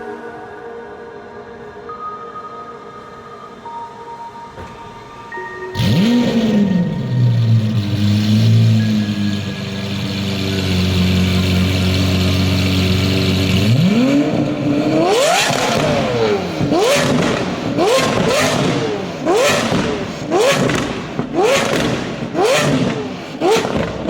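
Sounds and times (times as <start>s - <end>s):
car engine idling and revving: 5.8s - 24.0s
exhaust pops and crackles: 15.1s - 24.0s.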